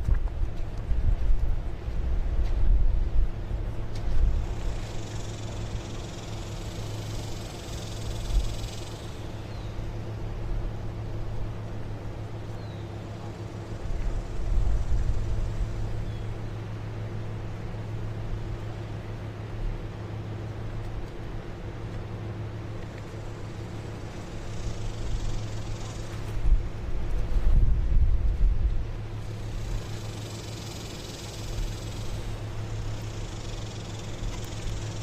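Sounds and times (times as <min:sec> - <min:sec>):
low mechanical hum: 0:00.0 - 0:35.0
uneven low rumbles: 0:00.0 - 0:35.0
light hiss: 0:04.0 - 0:09.8, 0:29.1 - 0:35.0.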